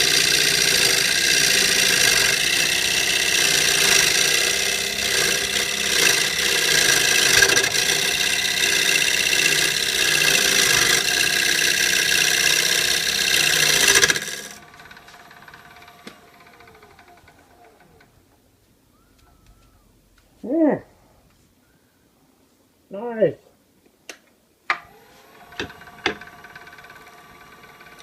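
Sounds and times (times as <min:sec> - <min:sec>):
lathe tool cutting wood: 0:00.0 - 0:18.2, 0:24.8 - 0:28.0
lathe motor running: 0:00.0 - 0:18.4, 0:24.8 - 0:28.0
spindle winding down hum: 0:00.0 - 0:20.3, 0:24.8 - 0:28.0.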